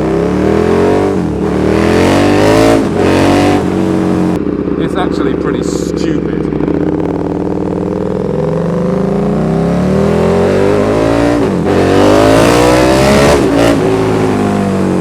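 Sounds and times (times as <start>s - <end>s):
loud exhaust note: 0.0s - 15.0s
motorcycle engine accelerating: 0.0s - 15.0s.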